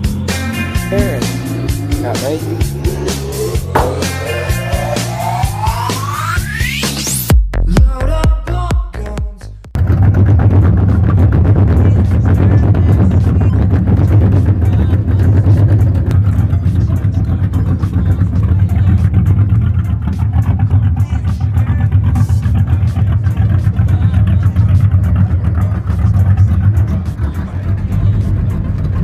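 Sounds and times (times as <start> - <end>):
car engine idling: 0.0 - 7.2, 9.8 - 29.0.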